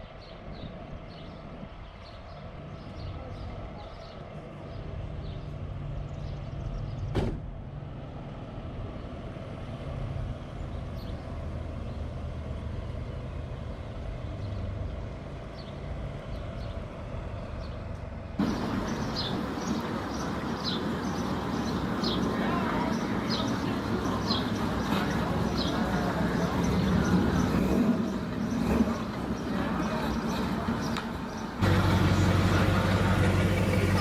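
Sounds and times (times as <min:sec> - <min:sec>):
open street noise: 0:00.0 - 0:34.0
car engine idling: 0:18.4 - 0:24.4, 0:29.4 - 0:34.0.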